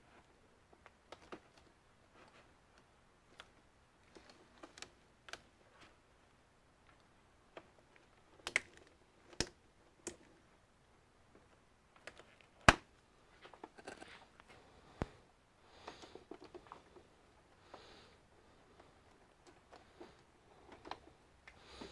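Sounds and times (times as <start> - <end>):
clicks and taps of computer parts: 8.4 - 10.3.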